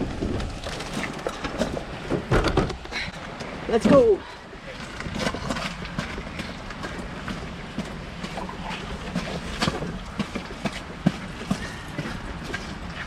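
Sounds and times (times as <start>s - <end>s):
footsteps on trail: 2.8s - 13.0s.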